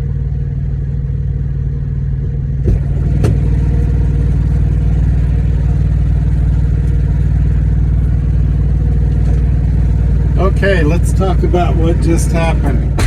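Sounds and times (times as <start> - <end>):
truck engine idling: 0.0 - 13.0
sharp knocks: 2.6 - 3.5.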